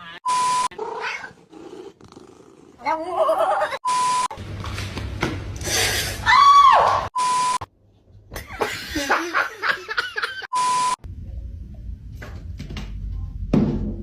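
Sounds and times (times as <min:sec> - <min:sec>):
censor bleep: 0:00.2 - 0:00.7, 0:03.8 - 0:04.3, 0:07.2 - 0:07.7, 0:10.5 - 0:11.0
loud falling cry: 0:06.2 - 0:07.1.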